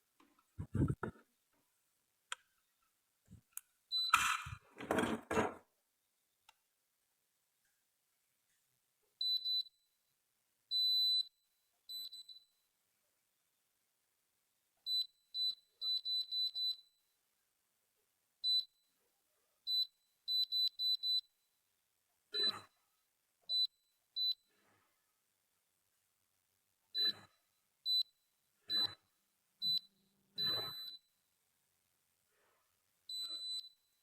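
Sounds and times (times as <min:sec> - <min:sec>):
short high electronic beeps: 0:30.4 - 0:31.0.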